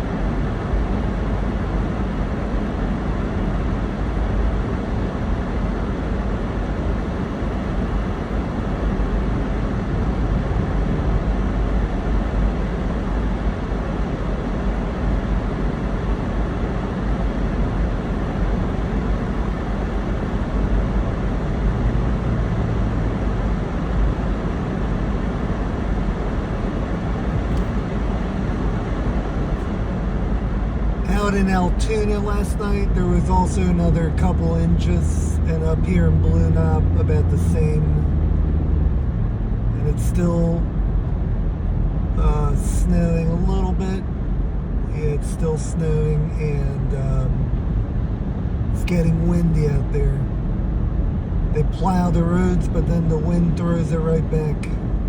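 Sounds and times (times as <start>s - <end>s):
car road and engine noise: 0.0s - 55.0s.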